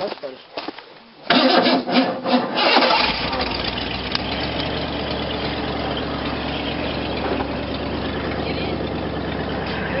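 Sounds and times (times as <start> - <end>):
truck engine idling: 2.6 - 10.0.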